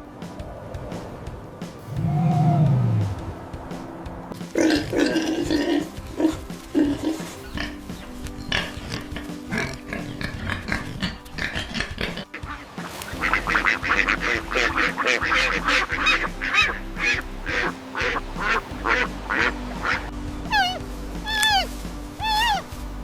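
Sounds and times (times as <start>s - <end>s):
faint background music: 0.0s - 23.0s
animal calls: 1.9s - 3.4s, 4.4s - 22.8s.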